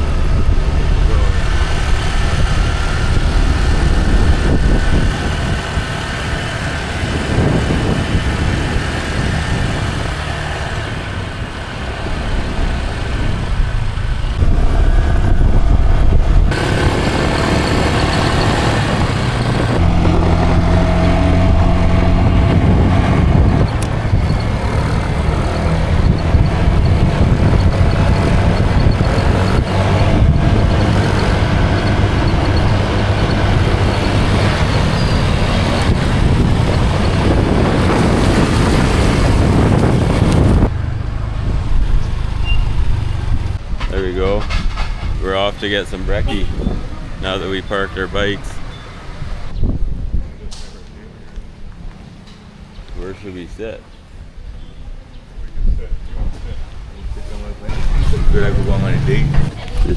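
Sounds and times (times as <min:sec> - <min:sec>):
scooter engine hum: 0:00.0 - 0:43.8
wind rumble on microphone: 0:00.0 - 0:52.0, 0:54.4 - 0:59.9.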